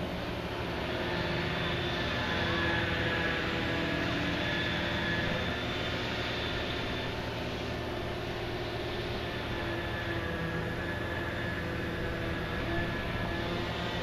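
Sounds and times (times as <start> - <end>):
heavy machinery droning: 0.0 - 14.0.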